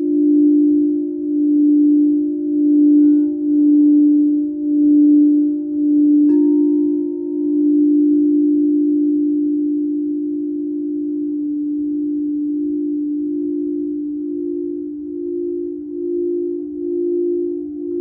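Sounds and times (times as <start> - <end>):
struck resonant instrument ringing: 2.6 - 9.6.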